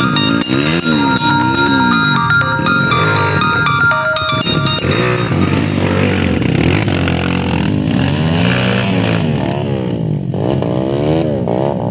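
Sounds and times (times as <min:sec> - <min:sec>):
motorcycle engine revving: 0:05.9 - 0:11.9.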